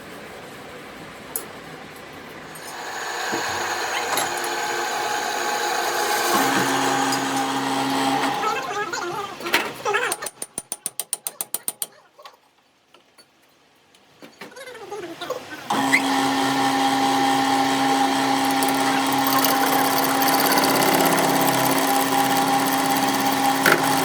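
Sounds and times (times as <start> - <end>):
ratchet-like metal clicks: 10.1 - 11.9, 18.4 - 24.0
mechanical running noise with hum: 15.7 - 24.0.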